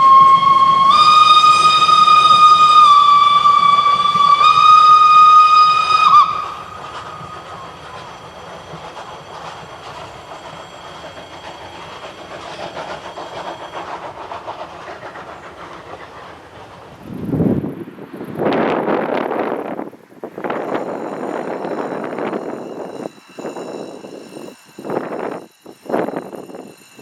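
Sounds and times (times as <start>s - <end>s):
steam locomotive whistle: 0.0s - 8.5s
steam hiss: 0.0s - 17.4s.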